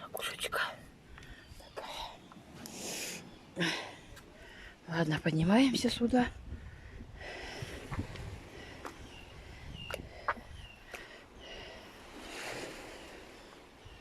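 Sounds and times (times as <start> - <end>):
surf washing: 10.2 - 14.0.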